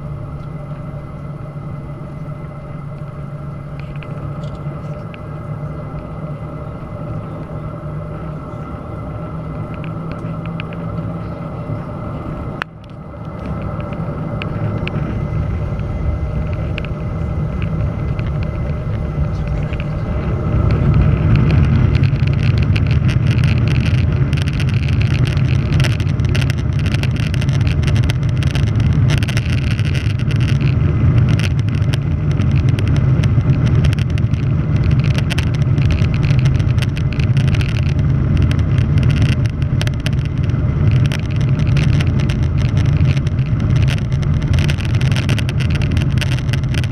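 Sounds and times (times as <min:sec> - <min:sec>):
jet engines spooling up: 0:00.0 - 0:23.1.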